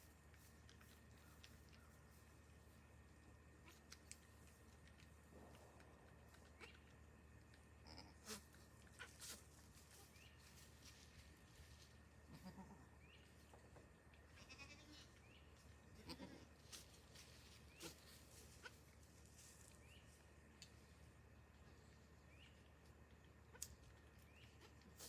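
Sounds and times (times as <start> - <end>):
goat bleats: 7.8 - 9.2, 12.2 - 13.0, 14.3 - 15.1, 15.9 - 16.5.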